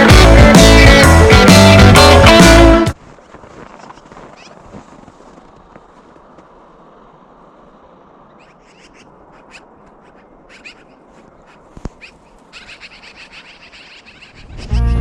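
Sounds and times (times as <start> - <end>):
loud music: 0.0 - 3.0
steady outdoor hiss: 4.8 - 15.0
small birds chirping: 8.2 - 15.0.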